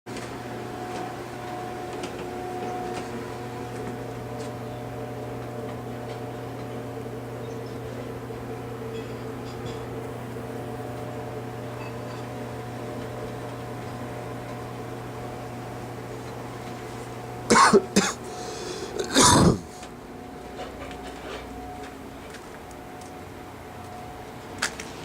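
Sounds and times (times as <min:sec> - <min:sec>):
steady low hum: 0:00.2 - 0:25.0
person coughing: 0:17.5 - 0:19.8.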